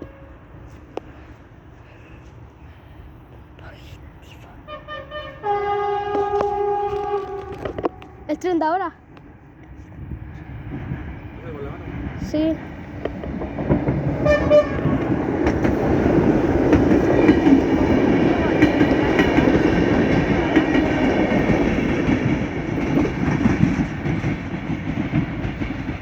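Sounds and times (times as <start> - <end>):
train horn: 0.0 - 1.0, 4.7 - 8.5, 14.2 - 15.4
train rumbling past: 0.0 - 26.0.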